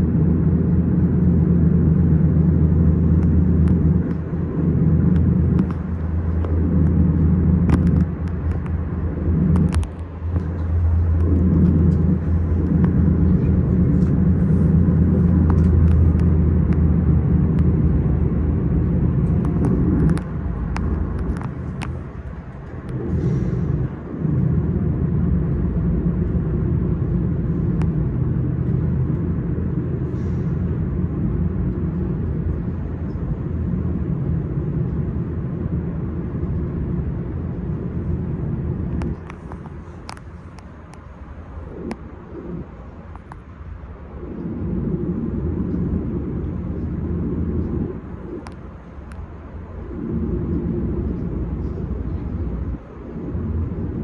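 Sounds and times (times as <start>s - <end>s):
electric train rumbling on track: 0.0s - 54.0s
scattered clicks: 3.1s - 17.8s, 19.0s - 23.2s, 38.8s - 43.6s, 45.6s - 53.5s.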